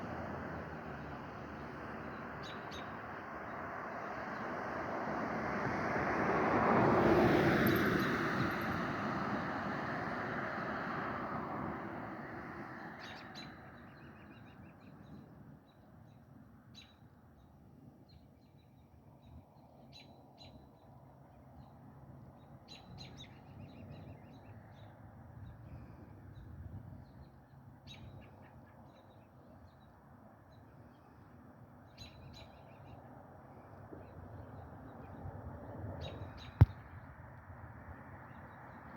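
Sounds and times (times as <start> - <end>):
passing vehicle rumble: 0.0 - 13.8.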